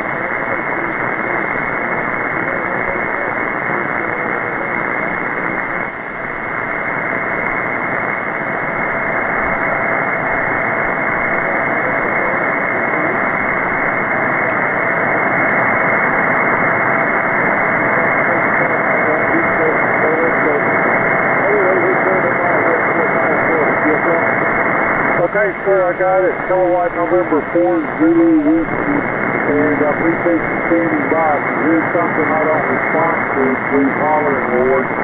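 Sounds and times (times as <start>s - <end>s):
radio hiss and static: 0.0s - 35.0s.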